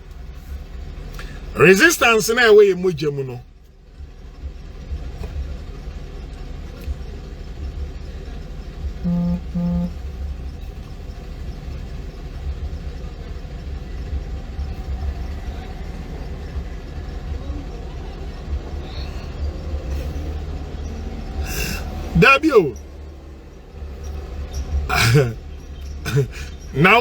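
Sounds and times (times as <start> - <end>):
low rumble of vehicle traffic: 0.0 - 27.0
car horn toots: 9.0 - 10.4, 21.5 - 22.8, 24.9 - 27.0.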